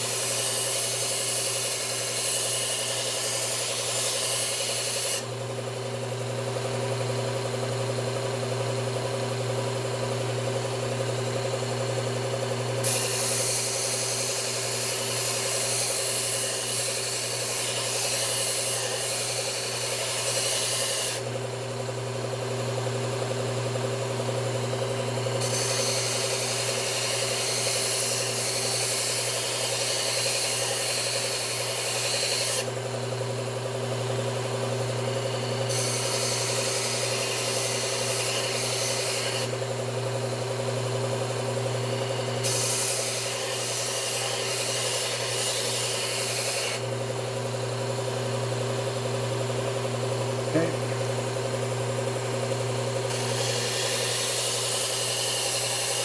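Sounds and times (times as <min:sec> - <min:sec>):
blade grinding on belt: 0:00.0 - 0:05.3, 0:12.8 - 0:21.3, 0:25.4 - 0:32.8, 0:35.0 - 0:39.8, 0:41.6 - 0:47.2, 0:53.0 - 0:56.0
belt sharpener motor humming: 0:00.0 - 0:56.0.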